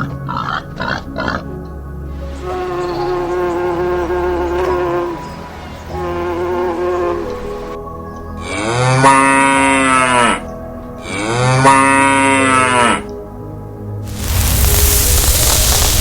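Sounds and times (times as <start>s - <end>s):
loud hiss: 14.1s - 16.0s.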